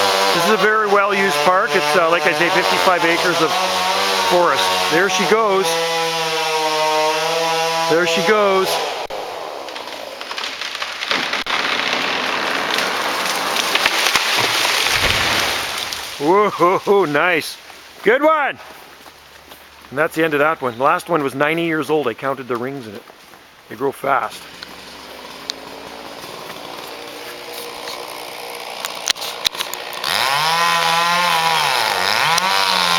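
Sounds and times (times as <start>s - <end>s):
chainsaw revving: 0.0s - 16.6s, 24.4s - 32.9s
branches cracking and crashing: 0.0s - 20.0s, 24.3s - 32.9s
tree trunk thudding on ground: 9.6s - 16.2s.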